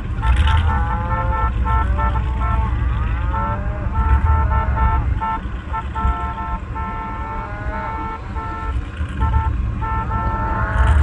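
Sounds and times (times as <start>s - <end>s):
steady low rumble: 0.0s - 11.0s
vehicle horn tooting: 0.0s - 11.0s.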